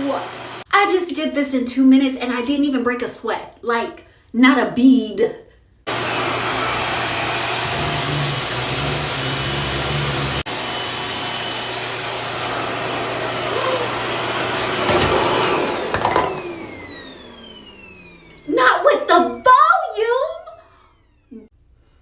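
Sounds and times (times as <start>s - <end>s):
hair dryer winding down whine: 0.0s - 0.6s, 5.9s - 21.5s
hair dryer running: 0.0s - 0.7s, 5.9s - 21.5s.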